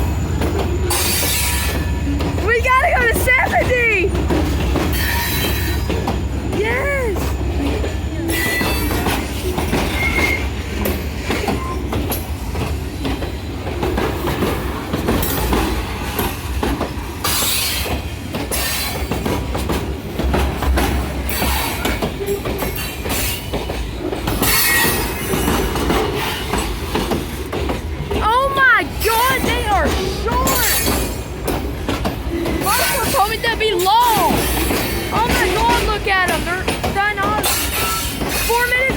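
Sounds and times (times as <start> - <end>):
train wheels squealing: 0.0 - 16.5, 17.2 - 19.3, 21.2 - 27.1, 37.4 - 38.9
freight cars rolling on rails: 0.0 - 38.9
wheels clacking over rail joints: 0.0 - 38.9.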